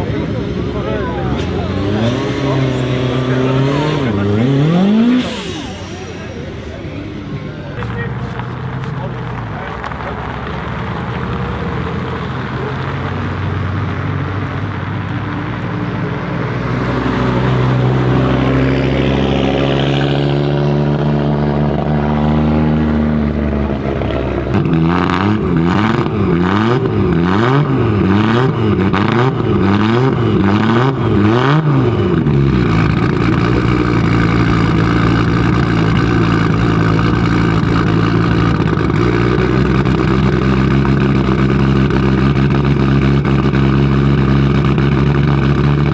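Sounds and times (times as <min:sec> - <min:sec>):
car engine revving: 0:00.0 - 0:45.9
exhaust crackles: 0:00.0 - 0:45.9.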